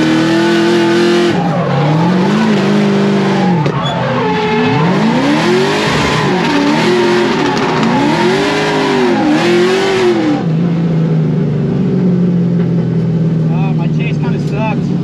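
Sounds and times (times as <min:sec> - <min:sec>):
car engine revving: 0:00.0 - 0:15.0
tyres sliding and spinning: 0:01.3 - 0:09.7.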